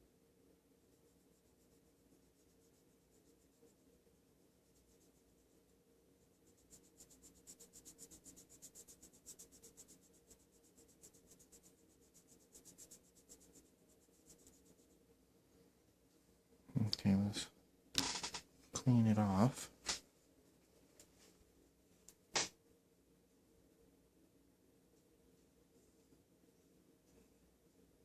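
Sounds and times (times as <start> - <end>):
rubbing on a fingernail: 0.9 - 4.0, 4.6 - 5.7, 6.3 - 15.0.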